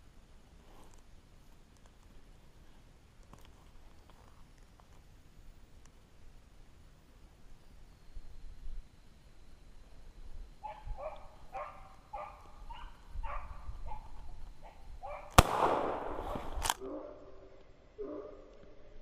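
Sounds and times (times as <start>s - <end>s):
hounds baying: 10.6s - 15.4s
gunshots: 15.4s - 16.8s.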